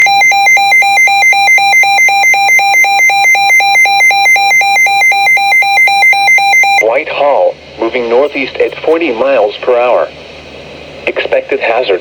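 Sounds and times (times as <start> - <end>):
electronic alert tone alternating pitch: 0.0 - 6.8.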